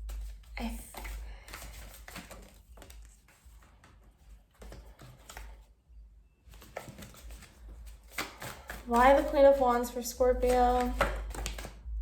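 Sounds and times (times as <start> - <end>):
cards being shuffled: 0.0 - 5.7, 6.5 - 11.8.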